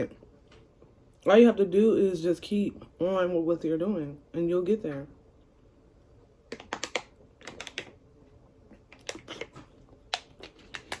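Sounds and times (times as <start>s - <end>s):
chewing crispy fried food: 8.7s - 11.0s.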